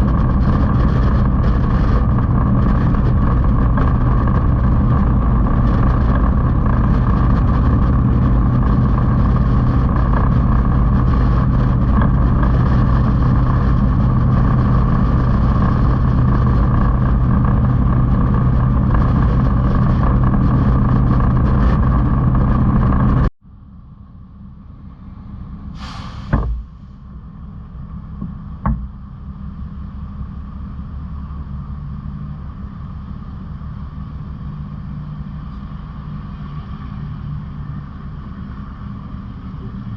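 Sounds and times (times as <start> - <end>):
motorcycle engine running: 0.0 - 23.3
road and wind noise: 0.0 - 39.9
short hiss: 25.8 - 27.0
sharp knock: 26.3 - 26.8, 28.2 - 29.0.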